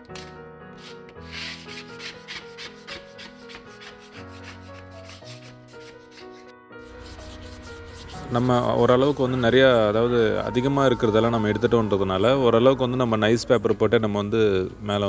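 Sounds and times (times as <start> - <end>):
background music: 0.0 - 14.8
sandpaper rubbing on sheet metal: 0.8 - 12.0.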